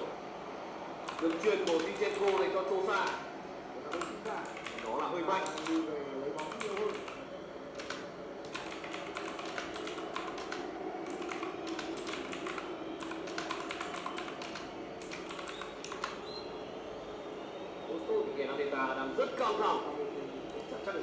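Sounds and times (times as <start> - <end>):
background murmur: 0.0 - 21.0
keyboard typing clicks: 1.0 - 3.2, 3.9 - 7.2, 7.8 - 16.4.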